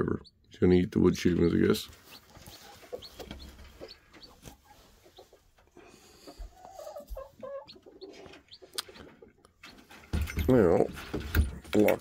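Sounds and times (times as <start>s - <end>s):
chicks peeping: 0.0s - 10.1s
chicken clucking: 1.2s - 10.0s.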